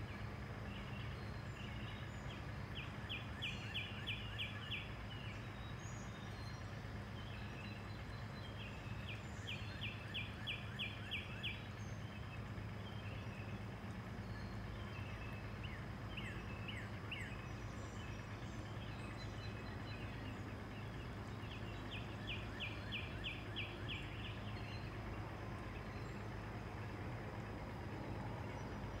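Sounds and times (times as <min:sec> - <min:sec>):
low background hum: 0:00.0 - 0:29.0
small birds chirping: 0:00.0 - 0:29.0.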